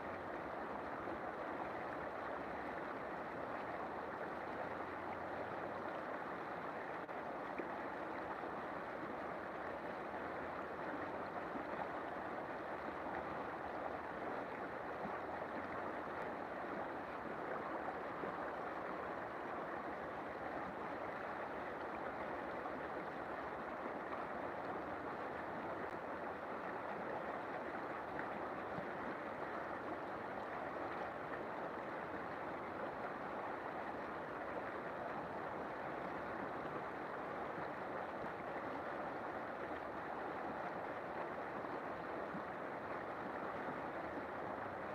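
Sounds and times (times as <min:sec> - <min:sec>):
river water rushing: 0:00.0 - 0:44.9.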